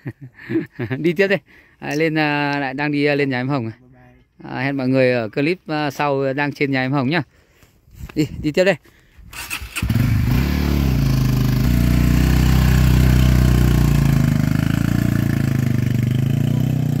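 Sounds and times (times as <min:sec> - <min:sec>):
motorcycle engine starting: 0:09.3 - 0:17.0.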